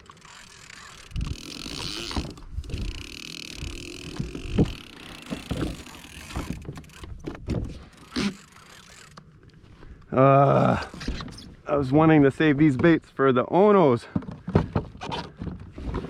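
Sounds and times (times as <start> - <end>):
wind: 0.0 - 16.0
knocks and thumps on kayak: 4.1 - 7.8, 14.1 - 16.0.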